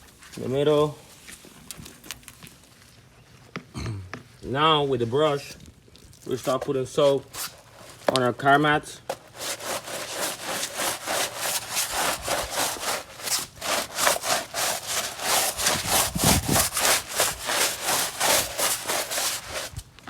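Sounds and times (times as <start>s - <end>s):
stiff brush scrubbing mat: 6.2s - 19.9s.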